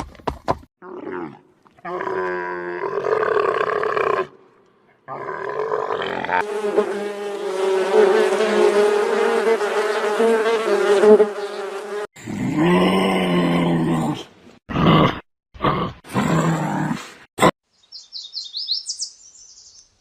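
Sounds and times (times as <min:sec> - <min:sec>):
insect buzzing: 0:06.4 - 0:12.1.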